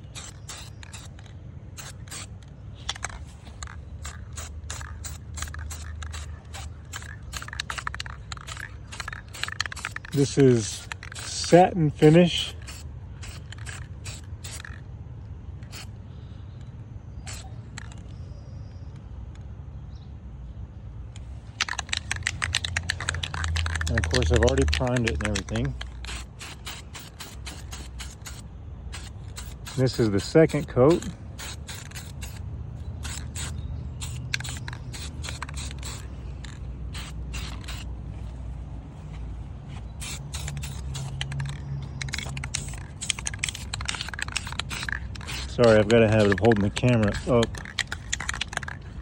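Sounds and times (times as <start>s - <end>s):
spray paint can hissing: 0.0s - 14.8s, 15.6s - 15.9s, 17.2s - 18.0s, 21.6s - 37.9s, 39.1s - 49.0s
low outdoor rumble: 0.0s - 49.0s.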